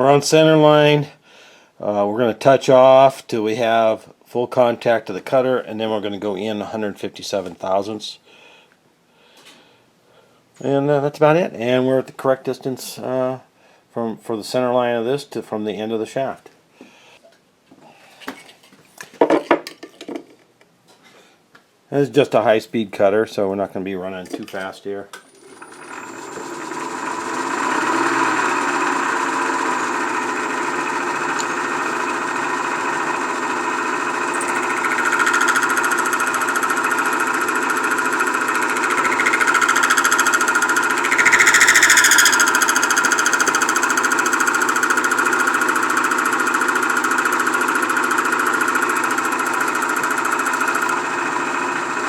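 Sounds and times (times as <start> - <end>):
metal lathe running: 25.3 - 52.0
lathe tool cutting metal: 25.4 - 52.0.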